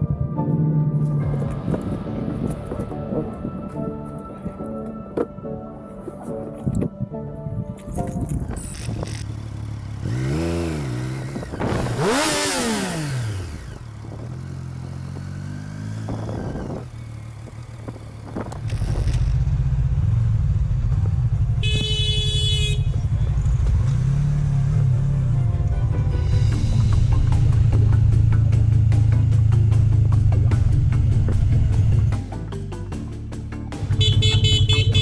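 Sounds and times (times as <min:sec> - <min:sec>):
motorcycle engine revving: 0:08.5 - 0:25.6, 0:26.2 - 0:32.4, 0:33.8 - 0:35.0.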